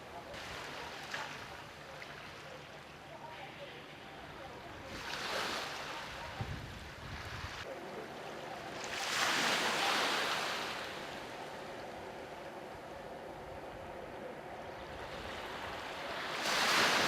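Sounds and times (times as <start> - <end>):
low wind rumble on microphone: 6.2 - 7.7
sea waves washing over rocks: 8.7 - 11.4, 15.2 - 17.0.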